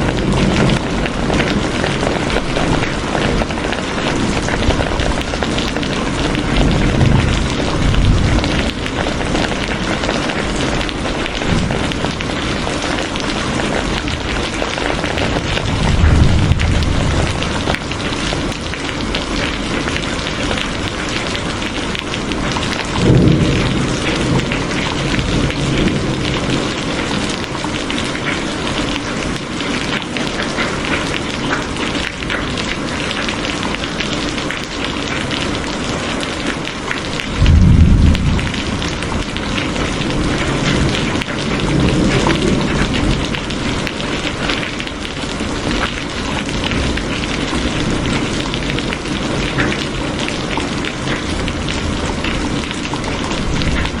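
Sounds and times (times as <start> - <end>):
thunder rolling: 0.0 - 21.0, 22.6 - 27.3, 37.3 - 43.8
heavy rain hissing: 0.0 - 54.0.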